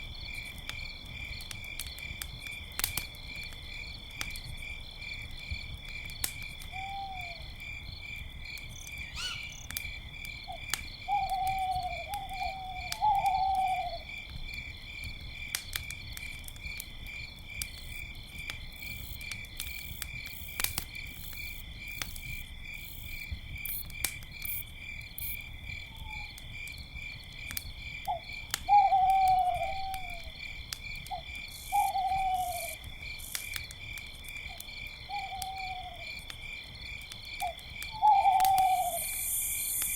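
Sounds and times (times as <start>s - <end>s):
campfire crackling: 0.0s - 39.9s
crickets chirping: 0.0s - 39.9s
owl hooting: 6.8s - 7.4s, 9.1s - 9.7s, 11.1s - 14.0s, 28.1s - 30.3s, 31.6s - 32.8s, 35.1s - 36.0s, 38.0s - 39.6s.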